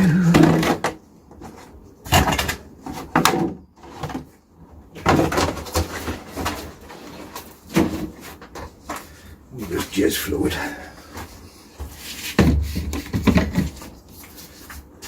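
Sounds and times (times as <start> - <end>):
objects knocking and scraping: 0.0 - 9.2, 11.0 - 15.0.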